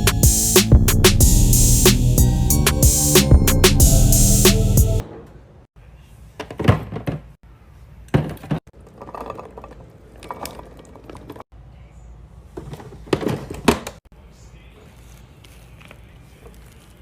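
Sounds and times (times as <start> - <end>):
music: 0.0 - 5.0.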